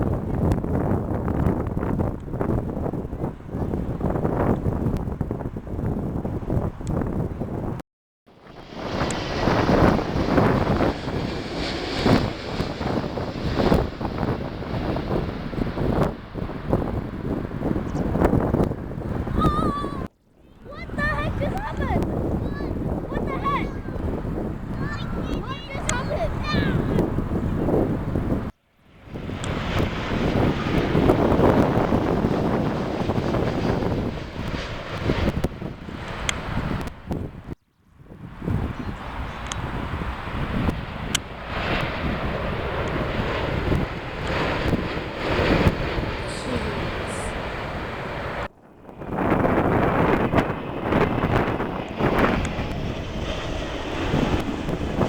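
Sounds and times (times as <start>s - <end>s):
wind buffeting microphone: 0.0s - 7.8s, 8.4s - 55.0s
jet airliner rushing noise: 8.4s - 20.1s, 28.9s - 37.5s, 38.5s - 55.0s.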